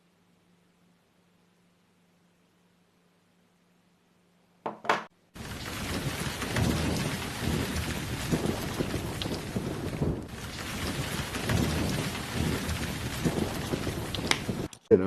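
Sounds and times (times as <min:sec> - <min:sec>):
dense rumbling and crackling: 0:05.4 - 0:15.0.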